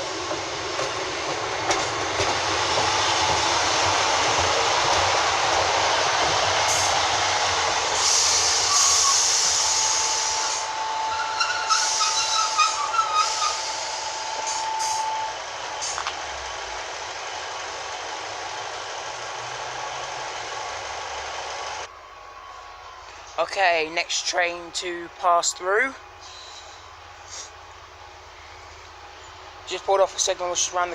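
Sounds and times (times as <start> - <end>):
train engine rumble: 0.0 - 30.9
brakes and wheels squealing: 6.3 - 24.2, 25.8 - 30.7
air brake hissing: 7.9 - 16.1, 26.2 - 27.6.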